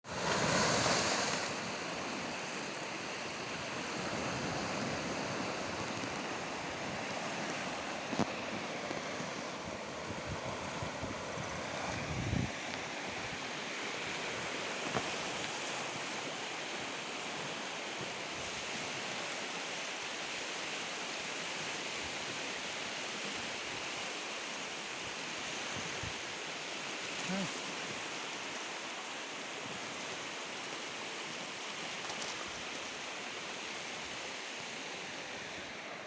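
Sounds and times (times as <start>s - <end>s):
fast-flowing river water rushing: 0.1s - 36.0s
wind buffeting microphone: 8.9s - 13.4s.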